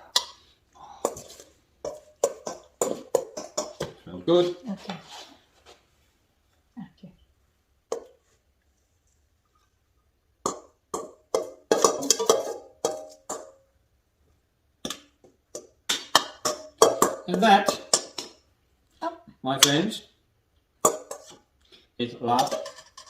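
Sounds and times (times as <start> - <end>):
utensils clinking against dishes: 11.4 - 13.5, 22.3 - 23.0.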